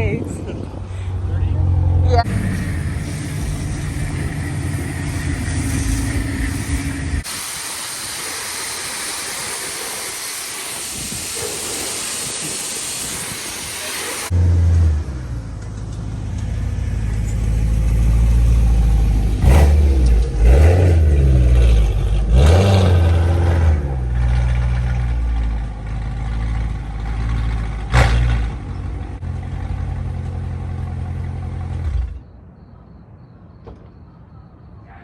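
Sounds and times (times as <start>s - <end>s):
car exhaust droning: 1.1s - 8.2s, 14.2s - 32.1s
engine revving: 1.5s - 7.3s, 14.2s - 32.2s.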